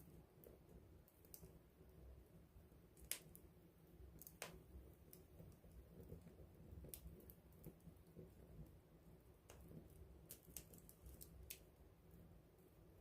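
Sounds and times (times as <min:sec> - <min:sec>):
wood fire crackling: 0:00.0 - 0:13.0
sharp pops of fire: 0:03.0 - 0:03.4.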